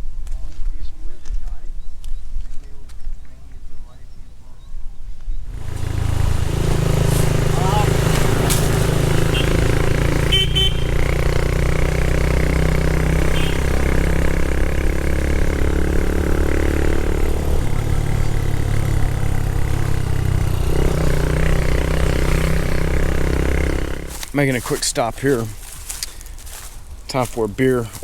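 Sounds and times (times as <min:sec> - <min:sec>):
motorcycle engine running: 0:05.4 - 0:28.0
horn beep: 0:06.8 - 0:14.3.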